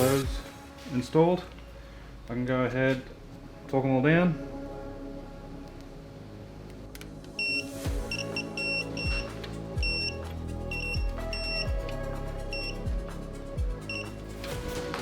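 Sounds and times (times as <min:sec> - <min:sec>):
background music with falling bass: 0:00.0 - 0:02.2, 0:03.0 - 0:15.0
torque wrench beeping: 0:07.4 - 0:11.7, 0:12.5 - 0:12.8, 0:13.9 - 0:14.2.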